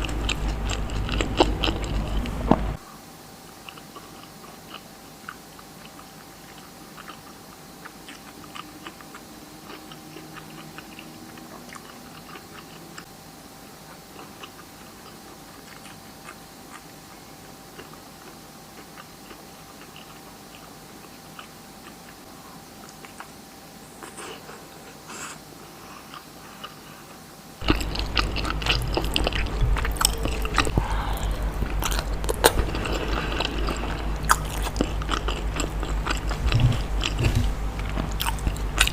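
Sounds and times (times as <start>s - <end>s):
heavy low rumble: 0.0s - 2.8s, 27.6s - 38.9s
person chewing: 0.0s - 2.8s, 3.6s - 13.1s, 14.1s - 23.4s, 24.0s - 38.9s
faint steady hum: 0.0s - 38.9s.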